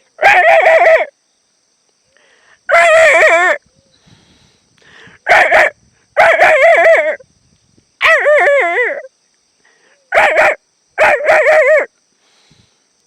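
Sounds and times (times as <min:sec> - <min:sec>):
dog calling with wavering pitch: 0:08.0 - 0:09.1, 0:10.1 - 0:11.9.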